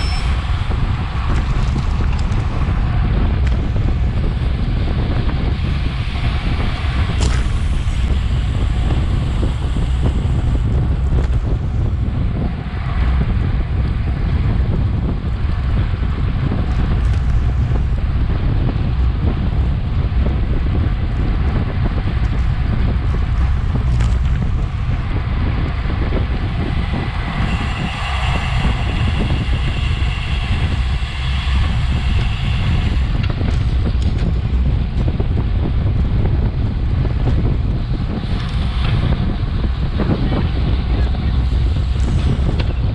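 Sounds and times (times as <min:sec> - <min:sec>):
high-pitched whir: 0:00.0 - 0:01.8, 0:26.0 - 0:34.4
wind rushing over microphone: 0:00.0 - 0:42.9.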